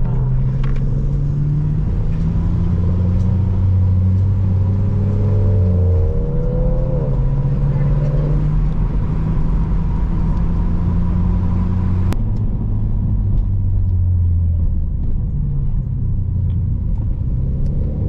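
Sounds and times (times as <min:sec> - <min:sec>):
car engine droning: 0:00.0 - 0:18.0.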